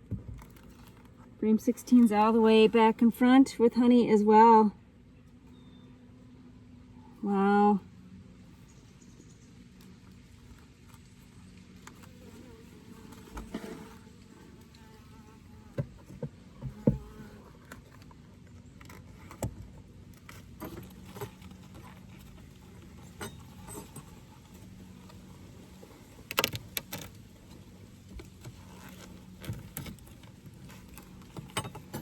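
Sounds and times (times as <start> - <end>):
honeybees buzzing: 11.7 - 18.8
wooden hive frames knocking: 15.8 - 17.2.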